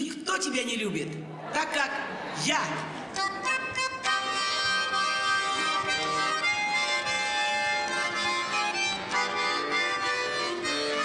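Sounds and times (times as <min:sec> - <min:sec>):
accordion melody: 0:02.9 - 0:11.0.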